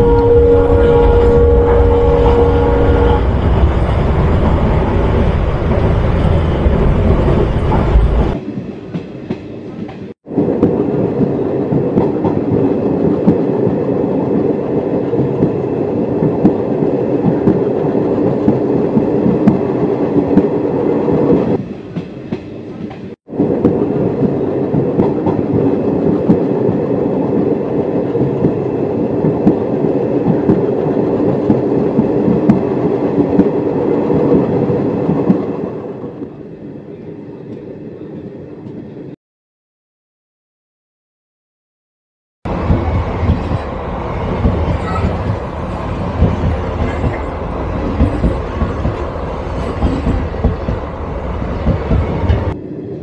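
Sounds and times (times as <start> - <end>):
locomotive horn: 0.0 - 3.4
train wheels clickety-clack: 6.6 - 20.6, 21.3 - 35.5, 42.5 - 52.6.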